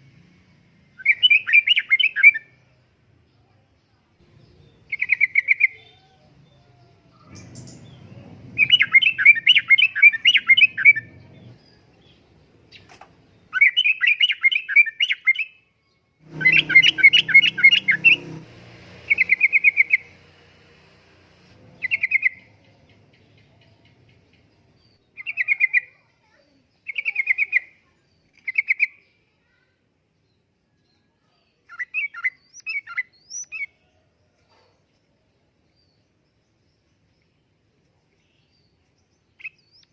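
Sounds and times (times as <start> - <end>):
faint low rumble: 6.0 - 13.5, 16.2 - 25.0.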